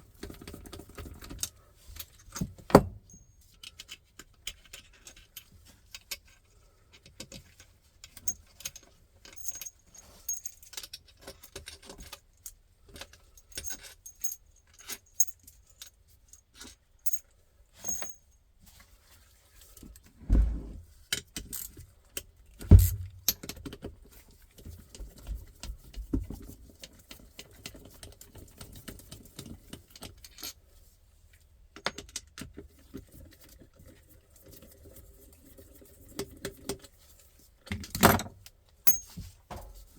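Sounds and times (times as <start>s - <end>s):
metal tools clinking and rattling: 8.3s - 11.8s, 38.9s - 39.9s
heavy knocks: 22.7s - 23.2s.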